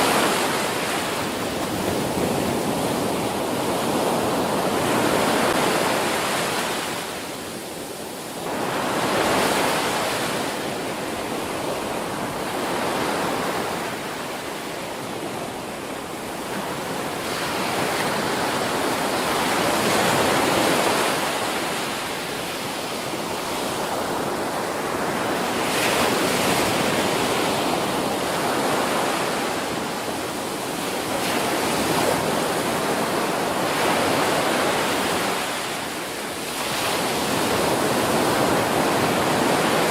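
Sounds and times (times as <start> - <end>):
ocean waves breaking: 8.2 - 39.9.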